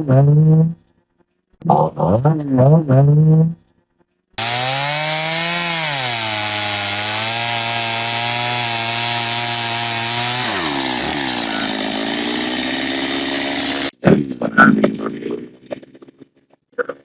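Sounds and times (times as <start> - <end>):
chainsaw cutting log: 4.4 - 13.9.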